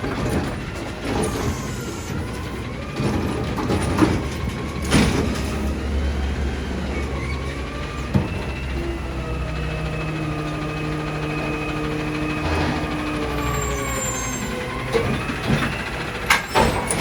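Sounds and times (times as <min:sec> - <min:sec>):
diesel engine rumbling: 0:00.0 - 0:17.0
wavering hydraulic whine: 0:04.4 - 0:16.8.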